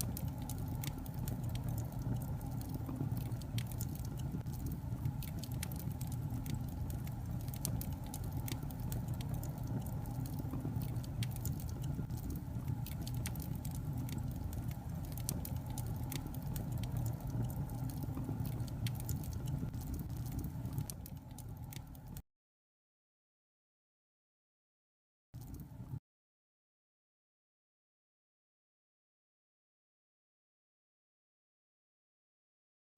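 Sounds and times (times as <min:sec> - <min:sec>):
flames rumbling: 0:00.0 - 0:22.2
logs crackling and popping: 0:00.0 - 0:22.2.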